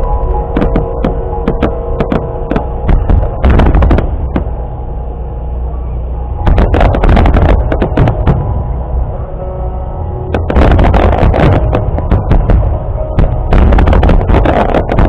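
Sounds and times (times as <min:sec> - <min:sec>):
low rumble: 0:00.0 - 0:15.0
music playing: 0:00.0 - 0:15.0
fireworks bursting in loud bangs: 0:00.6 - 0:04.5, 0:06.5 - 0:08.4, 0:10.4 - 0:15.0.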